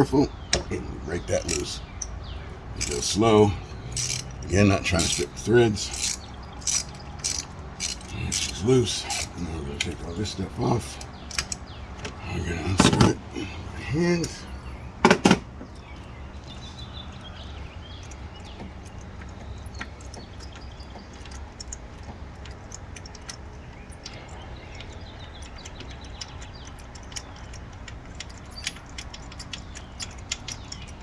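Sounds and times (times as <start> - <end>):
low steady rumble: 0.0 - 31.0
metallic socket clicks and clinks: 3.9 - 9.9, 11.0 - 11.6.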